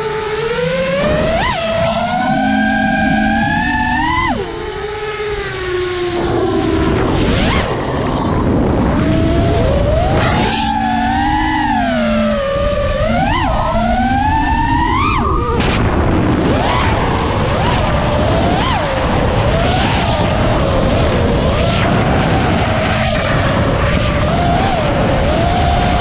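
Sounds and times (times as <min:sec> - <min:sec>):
drone motors whining: 0:00.0 - 0:26.0
wind rushing on microphone: 0:00.0 - 0:26.0.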